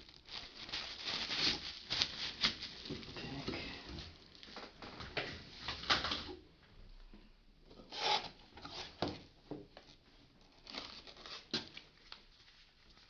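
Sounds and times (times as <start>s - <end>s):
packaging rustling: 0.0s - 4.8s, 10.5s - 12.2s.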